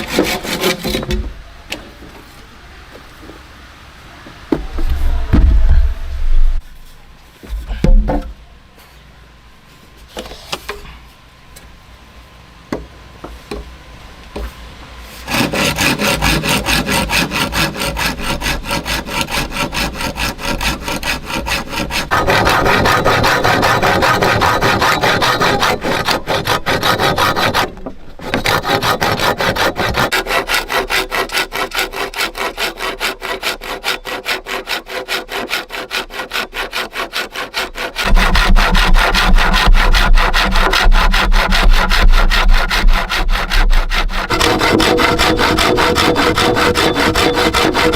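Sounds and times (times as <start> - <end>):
hand saw cutting wood: 0.0 - 1.2, 15.2 - 47.9.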